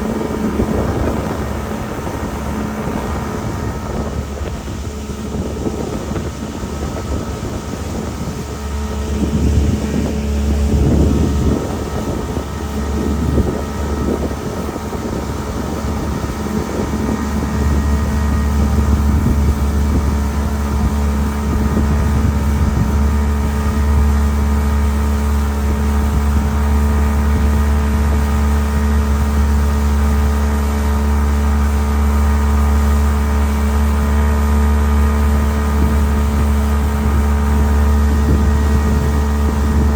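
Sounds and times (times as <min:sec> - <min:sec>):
motor running steadily: 0:00.0 - 0:39.9
wind buffeting microphone: 0:00.0 - 0:39.9.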